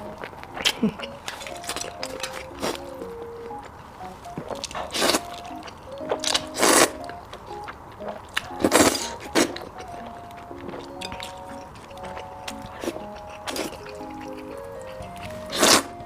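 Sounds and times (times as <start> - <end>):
mouth biting and chewing food: 0.0 - 16.0
quiet background music: 0.0 - 16.0.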